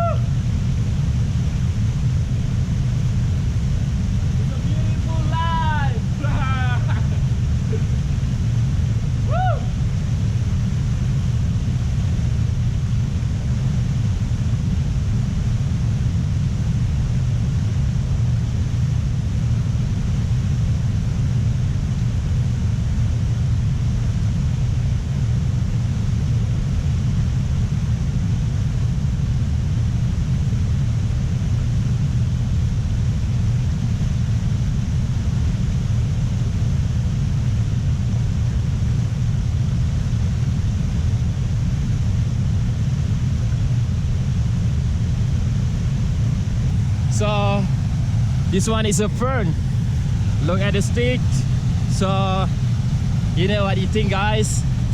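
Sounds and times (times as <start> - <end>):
steady low rumble: 0.0 - 54.9
faint high hiss: 46.6 - 54.9.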